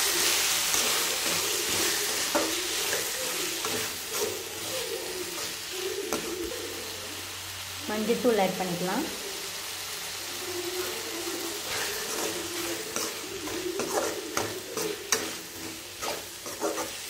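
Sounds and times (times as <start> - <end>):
steel ladle scraping a pan: 0.0 - 6.4, 10.6 - 17.0
masala sizzling in a metal pan: 0.0 - 17.0.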